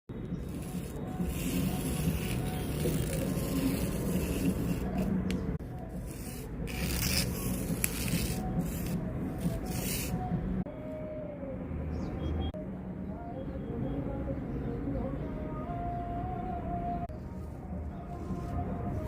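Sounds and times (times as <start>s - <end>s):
chalk scraping on a board: 0.4s - 5.2s, 5.9s - 10.3s.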